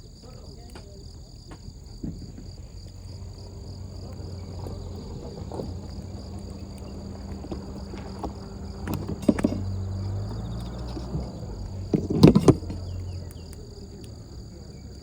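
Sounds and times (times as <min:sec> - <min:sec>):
crickets singing: 0:00.0 - 0:15.0
campfire crackles and knocks: 0:00.1 - 0:15.0.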